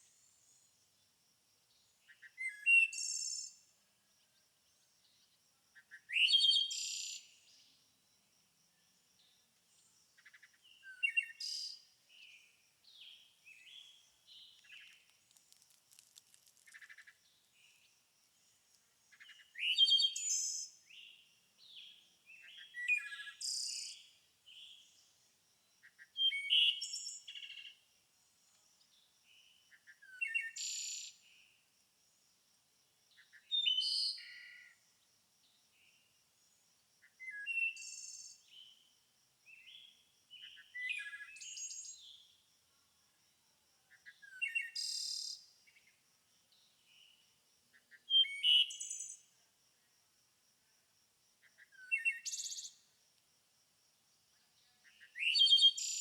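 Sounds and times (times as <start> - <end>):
songbirds singing and chirping: 1.7 - 3.7, 4.6 - 7.8, 8.7 - 27.8, 28.5 - 31.5, 33.1 - 34.8, 39.5 - 42.4, 43.9 - 46.0, 47.8 - 49.3, 51.4 - 52.9, 54.6 - 56.0.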